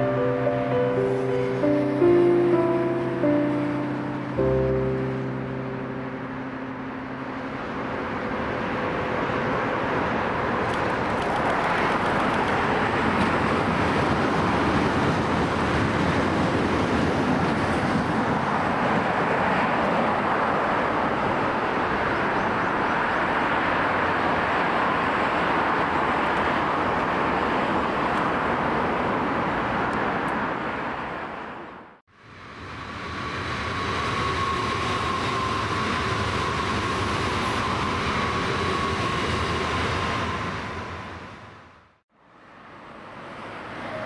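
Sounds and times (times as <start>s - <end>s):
passing train with high whine: 0.0s - 44.0s
train wheels and motors rumbling: 7.3s - 29.2s, 32.2s - 42.0s.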